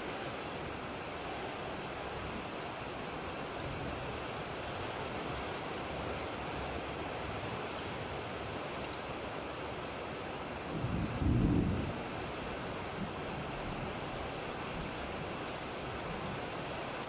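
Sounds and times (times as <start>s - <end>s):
thunder rumbling: 10.8s - 12.1s.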